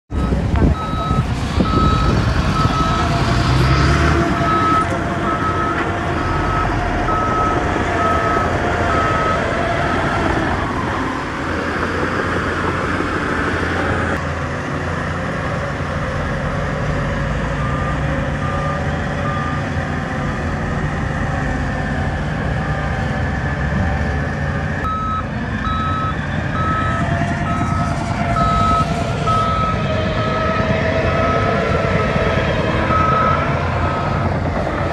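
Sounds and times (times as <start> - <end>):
reversing alarm beeping: 0.1 - 3.2, 4.4 - 11.1, 17.6 - 20.9, 24.8 - 34.3
heavy diesel machinery running: 0.1 - 34.9.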